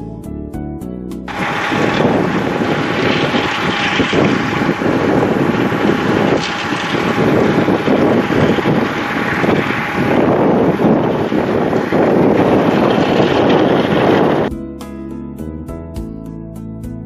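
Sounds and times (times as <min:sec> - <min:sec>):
wind buffeting microphone: 0:01.3 - 0:14.5.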